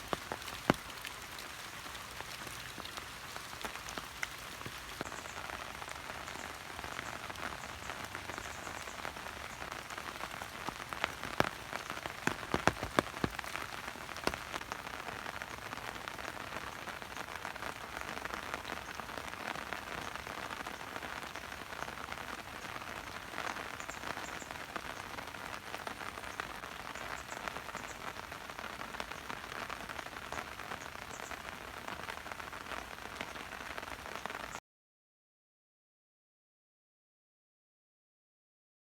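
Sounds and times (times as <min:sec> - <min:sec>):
rain falling: 0:00.0 - 0:34.6
sharp drop taps: 0:12.2 - 0:13.4.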